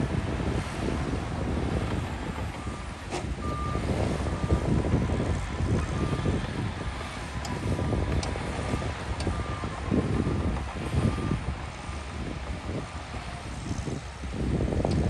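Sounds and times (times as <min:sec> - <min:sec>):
heavy machinery engine rumble: 0:00.0 - 0:15.0
reversing alarm beeps: 0:02.5 - 0:12.0.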